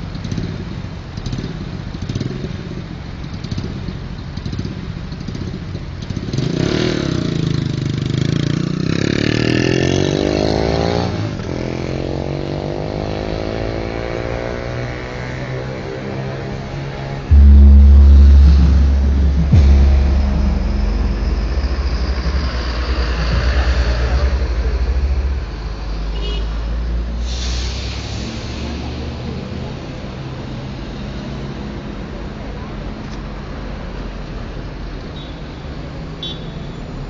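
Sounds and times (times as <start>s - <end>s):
road traffic noise: 0.0s - 37.0s
vehicle passing close by: 17.3s - 31.8s.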